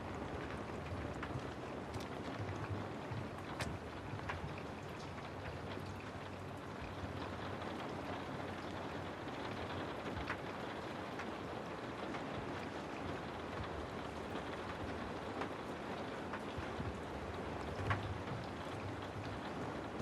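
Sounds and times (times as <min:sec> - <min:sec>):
rain drop ticks: 0:00.0 - 0:20.0
steady rain: 0:00.0 - 0:20.0.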